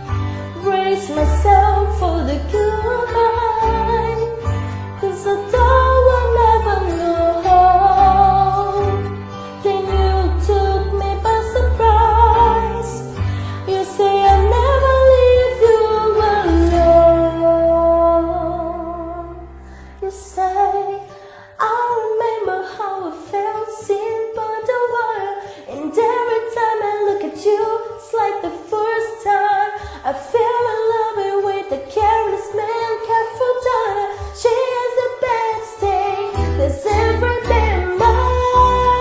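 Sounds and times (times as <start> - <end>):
person singing live: 0.0 - 39.0.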